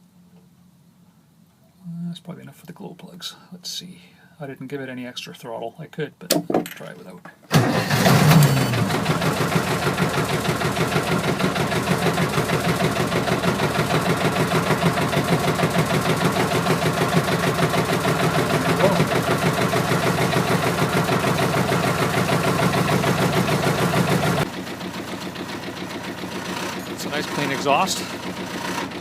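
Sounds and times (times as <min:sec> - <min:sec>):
diesel engine idling: 0:07.6 - 0:29.0.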